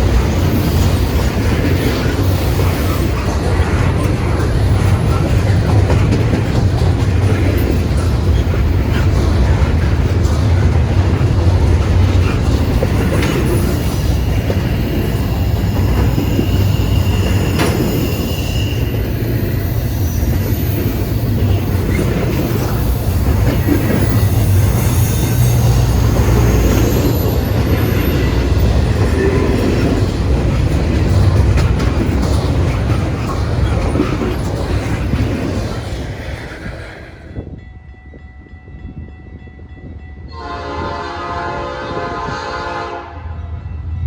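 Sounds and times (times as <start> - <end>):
freight train rumbling on rails: 0.0 - 44.0
faint wheel squeal: 13.6 - 22.0.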